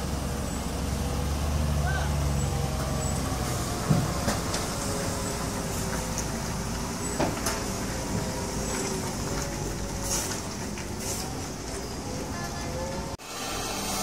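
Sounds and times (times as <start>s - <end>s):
truck engine rumbling: 0.0s - 14.0s.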